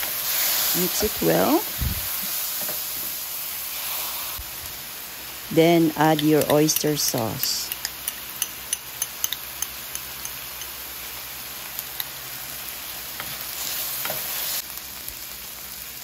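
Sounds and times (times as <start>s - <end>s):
meat and onions sizzling in pan: 0.0s - 16.0s
spatula tapping a pan: 7.7s - 10.8s.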